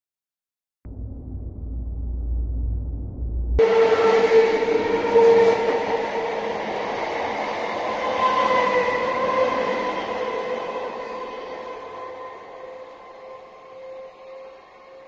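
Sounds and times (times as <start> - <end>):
train rushing past: 3.6 - 15.0.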